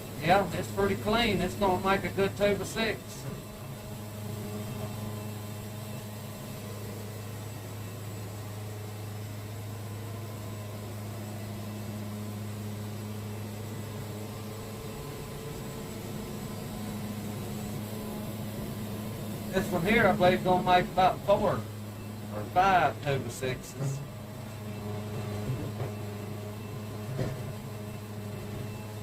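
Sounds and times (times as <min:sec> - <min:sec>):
sawmill engine humming: 0:00.0 - 0:29.0.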